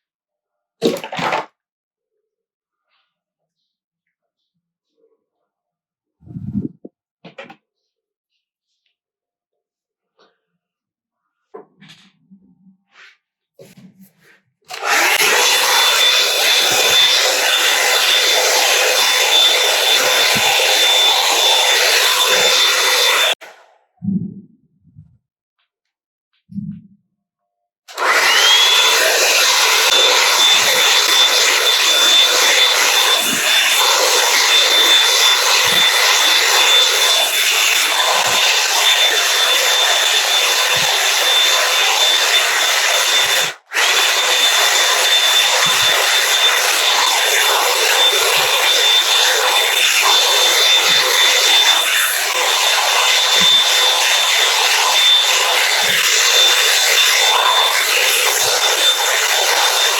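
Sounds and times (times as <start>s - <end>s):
hair dryer brush motor whine: 14.7s - 23.4s, 27.9s - 59.9s.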